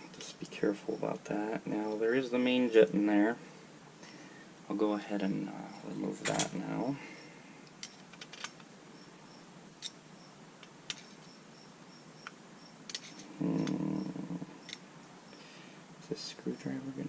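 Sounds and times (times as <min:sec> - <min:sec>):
small tools clicking and tapping: 0:07.7 - 0:08.7, 0:12.2 - 0:13.8
pitched hum: 0:12.2 - 0:17.0.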